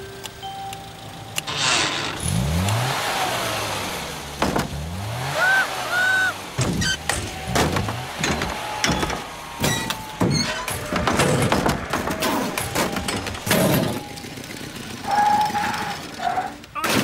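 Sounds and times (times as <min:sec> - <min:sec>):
small car engine revving: 0:01.4 - 0:09.6
knocks and thumps: 0:04.4 - 0:04.8, 0:06.6 - 0:14.0.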